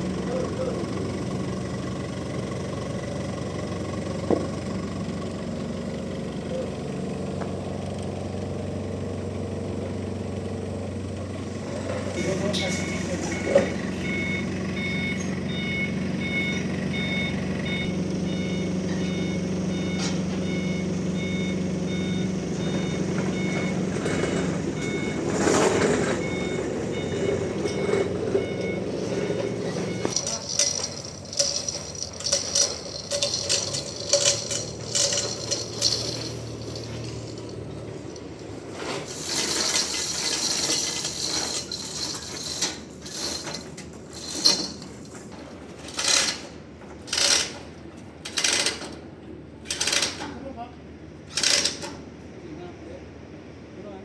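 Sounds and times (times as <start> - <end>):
heavy vehicle engine running: 0.0 - 54.0
knocks clanks and rattles: 11.6 - 52.4
reversing alarm beeping: 12.2 - 45.4.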